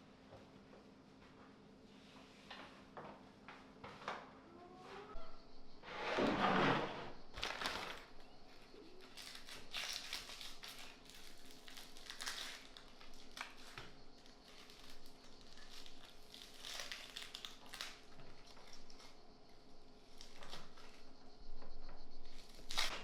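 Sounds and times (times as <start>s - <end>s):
hands crinkling and scraping food: 7.3s - 21.0s, 22.3s - 23.0s.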